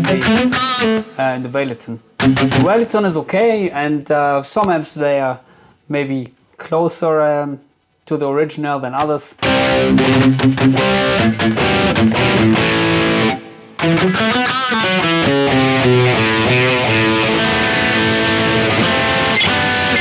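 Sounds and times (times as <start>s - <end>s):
electric guitar playing: 0.0s - 1.2s, 2.2s - 2.8s, 9.4s - 20.0s.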